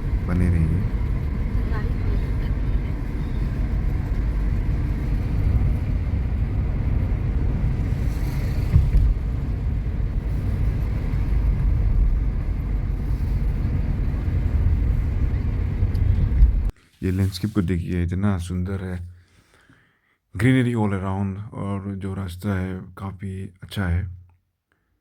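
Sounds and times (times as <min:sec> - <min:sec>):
vehicle engine and road rumble: 0:00.0 - 0:18.1
vehicle bump: 0:08.2 - 0:09.8.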